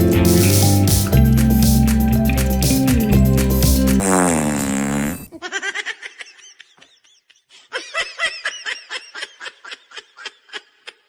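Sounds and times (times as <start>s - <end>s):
music: 0.0s - 5.2s.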